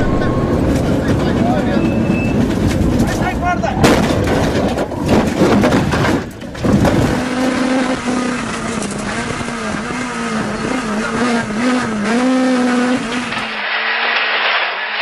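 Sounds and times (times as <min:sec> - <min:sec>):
rally car engine revving: 0:04.0 - 0:14.2
harsh noisy bursts: 0:12.6 - 0:15.0.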